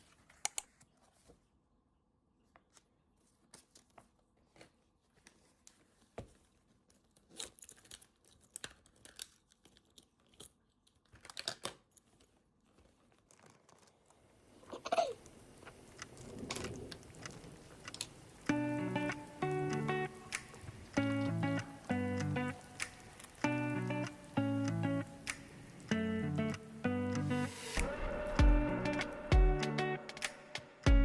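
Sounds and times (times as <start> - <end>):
paper rustling: 0.0 - 1.6, 2.4 - 14.3.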